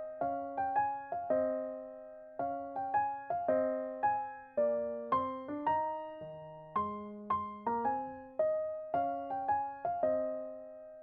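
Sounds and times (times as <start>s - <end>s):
gentle piano melody: 0.0s - 11.0s.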